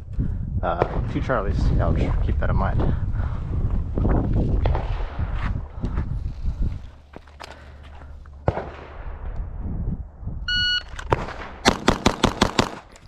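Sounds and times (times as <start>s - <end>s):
shot timer beep: 10.5s - 10.9s
rapid pistol shots: 11.1s - 13.0s.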